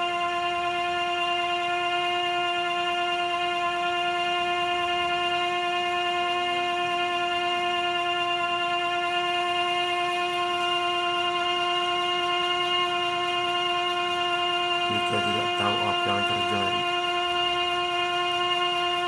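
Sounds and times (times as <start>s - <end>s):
steady droning tone: 14.9s - 17.1s.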